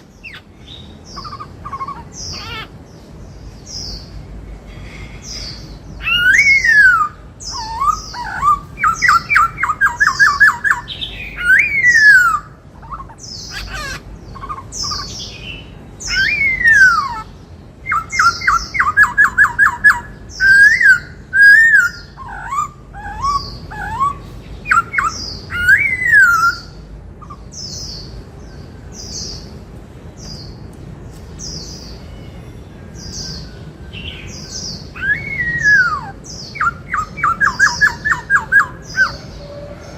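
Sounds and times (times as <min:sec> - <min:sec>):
bird song with whistled notes: 0:00.0 - 0:04.3, 0:05.2 - 0:29.6, 0:31.4 - 0:39.9.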